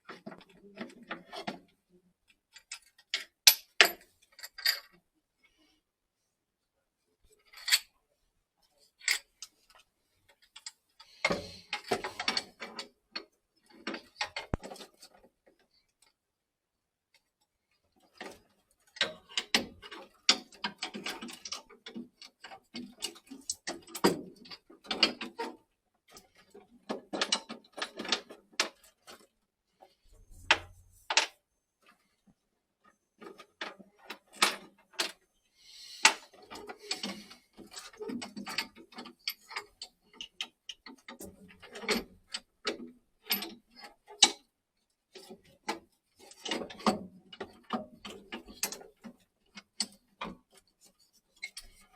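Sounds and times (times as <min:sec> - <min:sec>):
tools clicking and knocking: 0:02.5 - 0:05.0, 0:09.0 - 0:15.2, 0:18.1 - 0:29.3, 0:30.2 - 0:31.4, 0:36.0 - 0:44.5.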